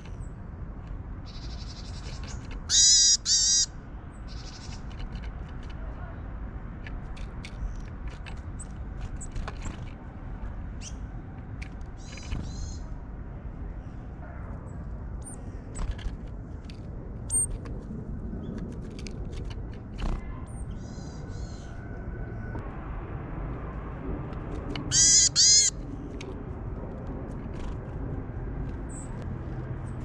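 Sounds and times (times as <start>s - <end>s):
birds tapping at seeds: 0.0s - 3.6s, 4.4s - 5.9s, 6.7s - 12.8s, 18.4s - 20.3s
steady low rumble: 3.7s - 30.0s.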